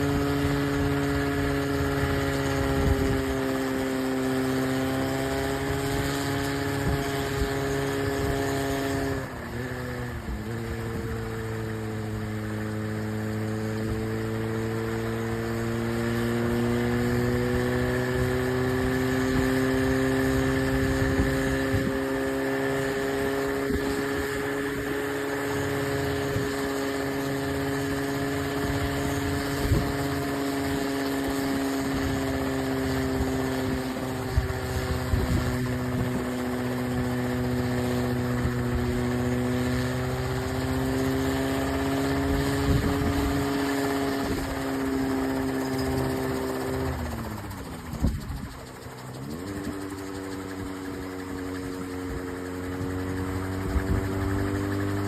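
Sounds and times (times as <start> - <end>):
helicopter motor and rotors humming: 0.0 - 55.0.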